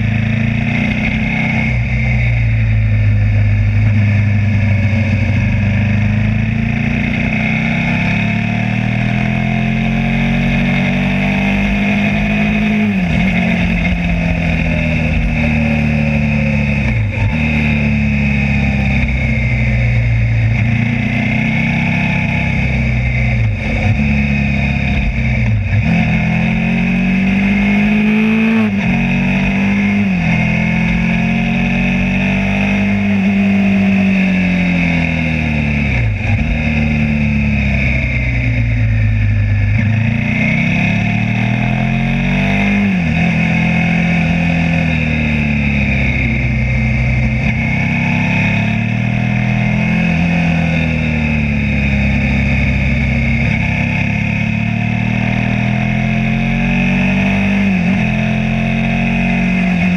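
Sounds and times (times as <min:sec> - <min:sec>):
motorcycle engine shifting gears: 0:00.0 - 0:59.9
wind and road noise: 0:00.0 - 0:59.9.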